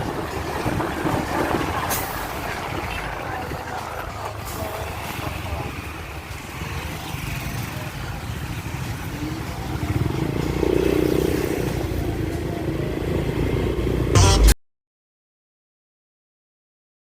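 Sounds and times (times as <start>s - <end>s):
wind noise: 0.0s - 4.1s
loud short noise: 14.2s - 14.6s.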